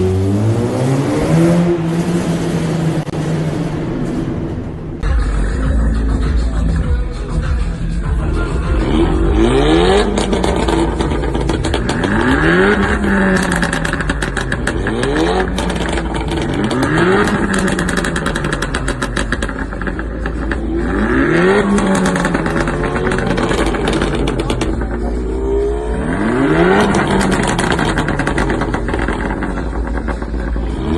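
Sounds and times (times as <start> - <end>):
engine revving: 0.0 - 7.4, 8.1 - 30.9
exhaust crackling pops and bangs: 10.0 - 20.6, 21.5 - 25.2, 26.7 - 30.8.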